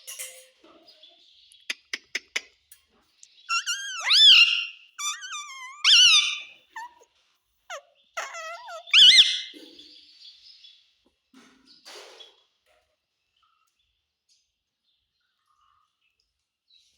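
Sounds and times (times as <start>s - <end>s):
parrot calls swooping in pitch: 3.5s - 7.0s, 8.2s - 9.5s.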